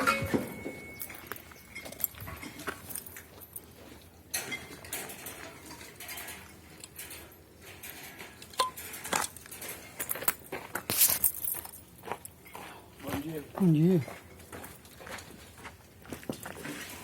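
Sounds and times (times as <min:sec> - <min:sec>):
metal objects clinking: 0:00.0 - 0:12.4.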